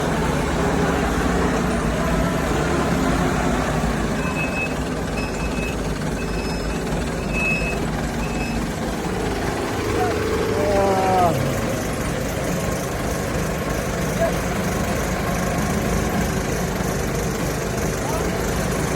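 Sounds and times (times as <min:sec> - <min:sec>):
heavy vehicle engine running: 0:00.0 - 0:18.9
reversing alarm beeps: 0:04.2 - 0:08.7.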